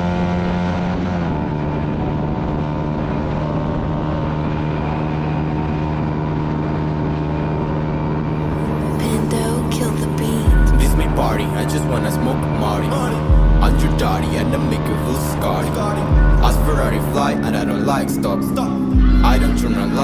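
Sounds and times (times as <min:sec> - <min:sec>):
motorcycle engine at high revs: 0:00.0 - 0:20.0.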